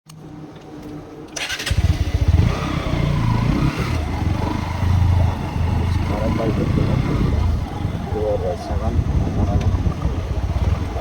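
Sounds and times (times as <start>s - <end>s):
electric starter whirring: 1.3s - 3.4s
motorcycle engine idling: 4.0s - 11.0s.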